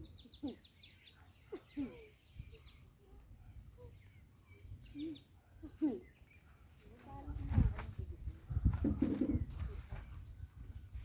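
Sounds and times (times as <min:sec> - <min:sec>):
low bird calls: 0:00.0 - 0:06.9.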